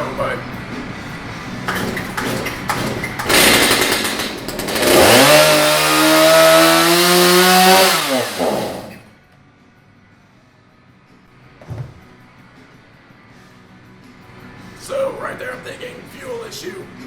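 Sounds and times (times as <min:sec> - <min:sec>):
chainsaw sputtering and revving: 0:01.7 - 0:09.1.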